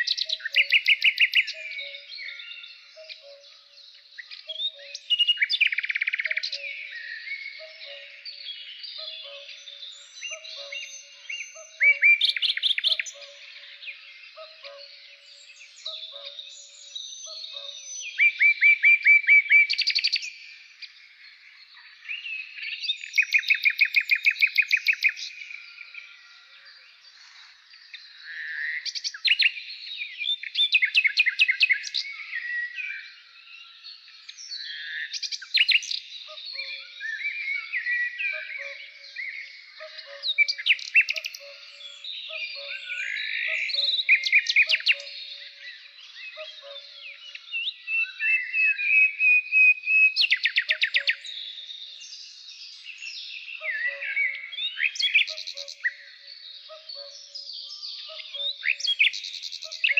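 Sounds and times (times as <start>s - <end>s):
birds chirping: 0.0s - 59.9s
bird trilling: 8.9s - 15.0s.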